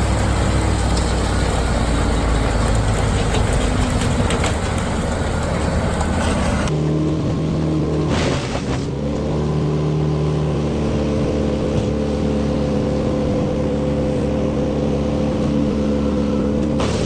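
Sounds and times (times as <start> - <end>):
wood chipper engine running: 0.0 - 11.1.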